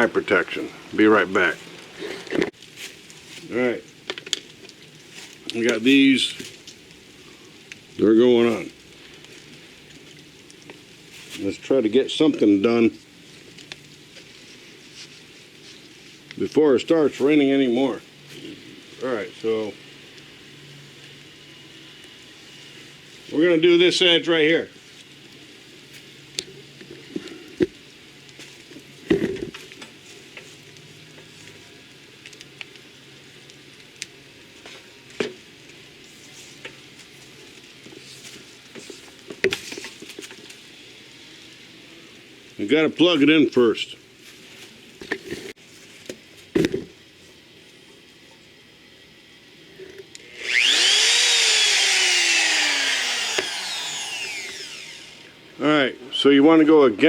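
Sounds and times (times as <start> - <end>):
light rain pattering: 0.0 - 45.1
router motor whine: 50.2 - 55.4.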